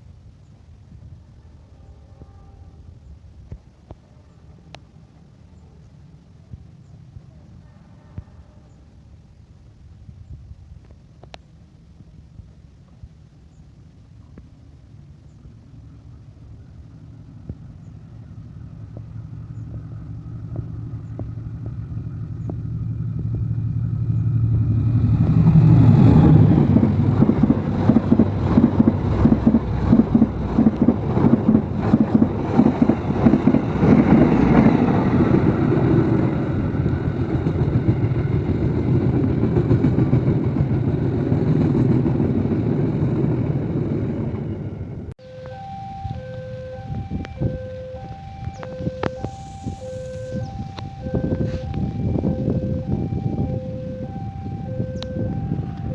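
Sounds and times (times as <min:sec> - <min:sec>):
passenger train passing: 0:14.6 - 0:55.9
wheels clattering over rails: 0:25.3 - 0:45.0.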